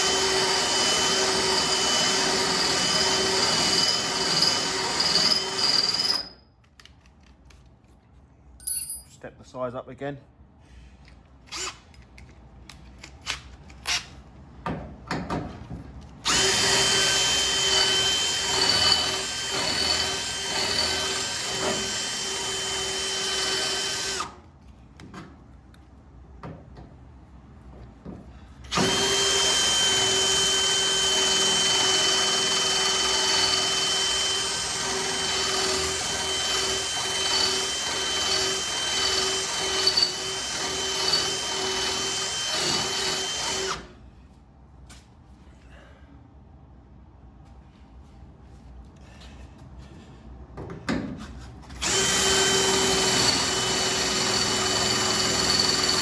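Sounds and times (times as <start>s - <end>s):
electric drill whining: 0.0s - 6.3s, 16.3s - 24.4s, 28.7s - 43.9s, 51.8s - 56.0s
drill clicks: 16.3s - 24.4s, 51.8s - 56.0s.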